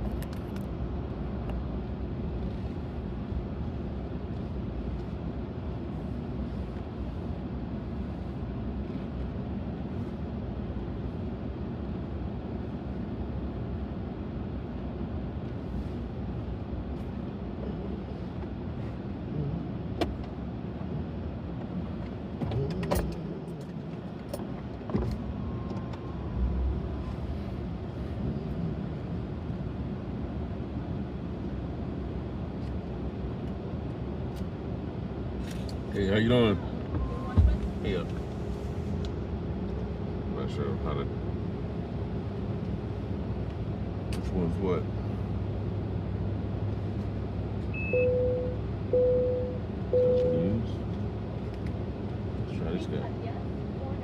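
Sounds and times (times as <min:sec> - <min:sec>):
short steady tone: 0:47.8 - 0:50.5.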